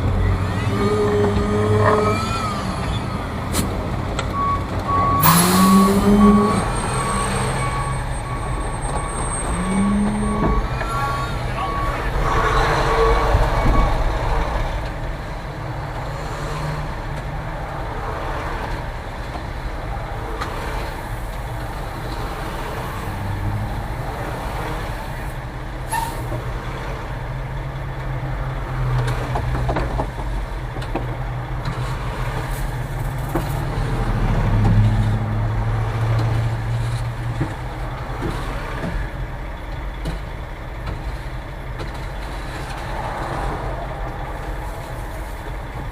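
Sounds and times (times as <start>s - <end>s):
diesel truck engine revving: 0.0s - 29.3s.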